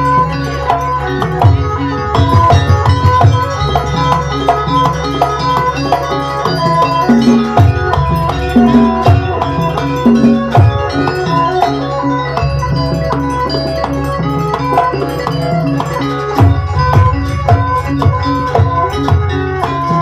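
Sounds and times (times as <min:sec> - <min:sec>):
hand-drum strokes: 0:00.0 - 0:20.0
metal gong-chimes and metallophones: 0:00.0 - 0:20.0.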